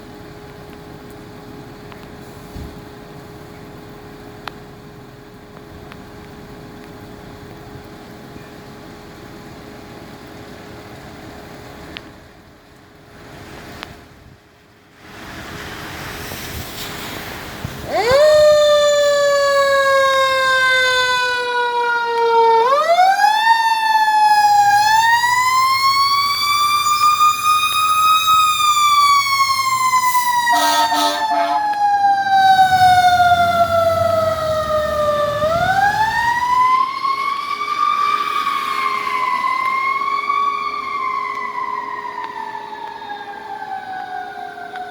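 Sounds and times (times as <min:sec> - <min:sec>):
truck engine rumble: 0:00.0 - 0:41.2
fire engine siren wailing: 0:17.6 - 0:44.9
horn blasts: 0:30.5 - 0:31.8.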